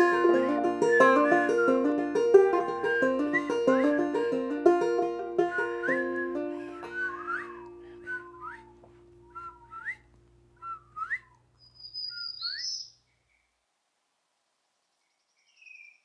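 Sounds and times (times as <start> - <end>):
plucked string note: 0.0 - 8.0
whistled rising bird calls: 5.6 - 10.0, 10.6 - 13.5, 15.0 - 16.0.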